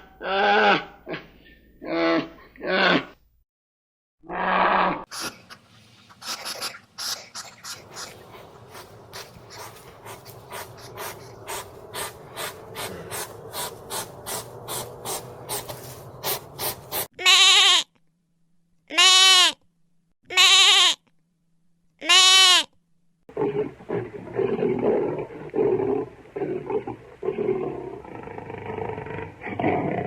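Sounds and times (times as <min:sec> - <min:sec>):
animal calling: 0:06.2 - 0:17.4.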